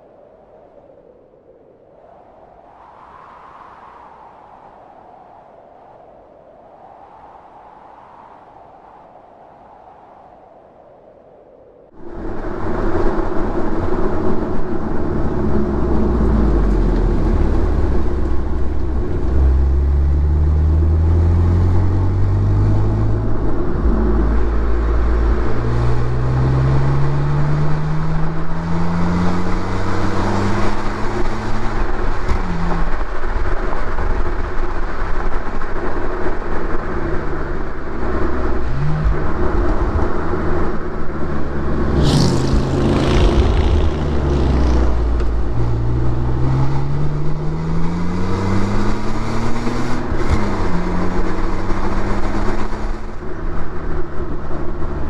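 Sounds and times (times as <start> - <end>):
road and wind noise: 0.0 - 55.0
car engine revving through gears: 14.9 - 33.0, 38.0 - 53.2.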